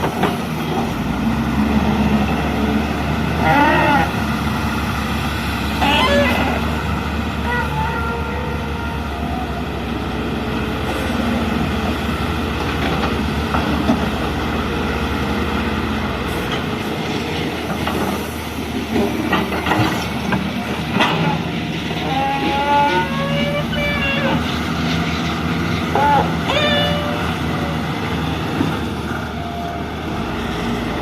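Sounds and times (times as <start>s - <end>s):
excavator diesel engine running: 0.0s - 31.0s
hydraulic whine: 3.4s - 9.8s
metal clanks and knocks: 18.9s - 21.4s.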